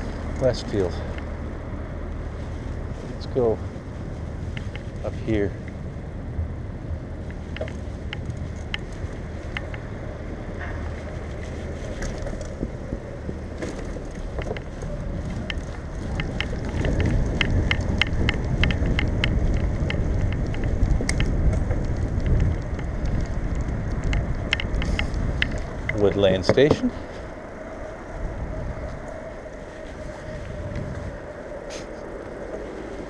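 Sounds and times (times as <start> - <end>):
bicycle tyres rumbling: 0.0 - 33.0
wind on camera: 0.0 - 33.0
light clicks and rattles: 11.0 - 26.9.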